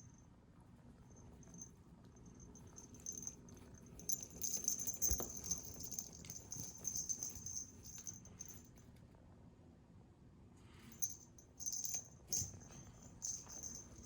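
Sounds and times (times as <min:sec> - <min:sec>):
cat toy rattling and jingling: 0:01.1 - 0:08.7, 0:11.0 - 0:14.0.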